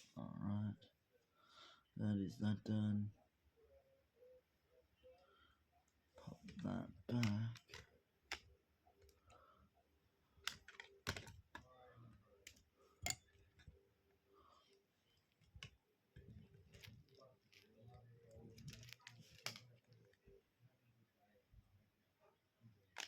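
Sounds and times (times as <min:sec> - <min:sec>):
plastic pieces clicking and rattling: 0:06.3 - 0:09.3, 0:10.4 - 0:11.7, 0:15.3 - 0:20.2
plastic pieces snapping: 0:06.3 - 0:09.3, 0:10.4 - 0:11.7, 0:15.3 - 0:20.2.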